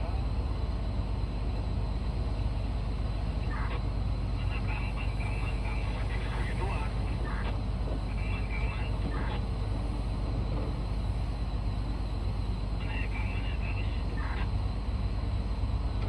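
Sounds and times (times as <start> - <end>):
heavy diesel engines droning: 0.0 - 16.0.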